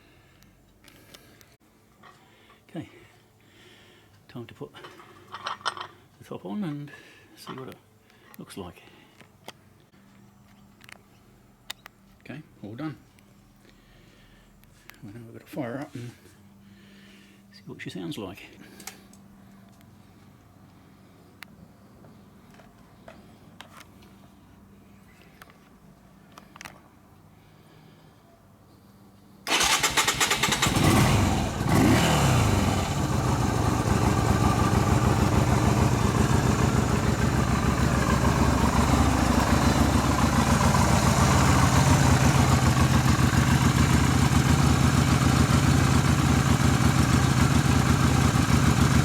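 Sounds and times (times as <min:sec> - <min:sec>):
motorcycle engine starting and idling: 0:29.4 - 0:49.0.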